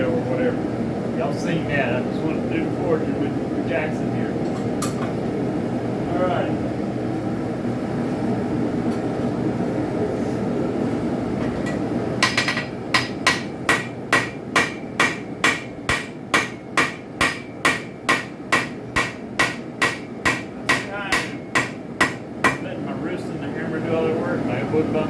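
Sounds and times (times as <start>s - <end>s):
hammer striking spike on anvil: 12.2s - 22.6s.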